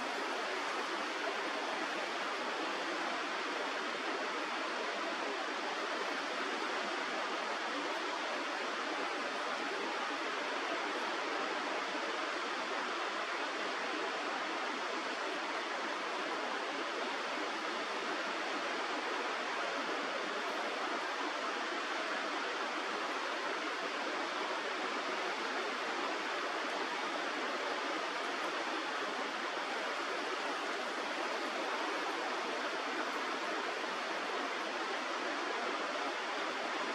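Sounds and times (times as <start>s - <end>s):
river water rushing: 22.6s - 36.9s.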